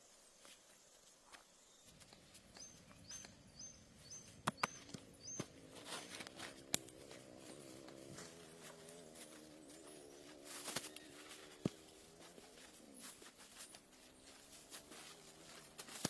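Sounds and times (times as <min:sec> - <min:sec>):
small bird chirping: 0:01.5 - 0:14.5
low wavering hum: 0:01.9 - 0:16.0
sharp snaps: 0:04.4 - 0:05.0.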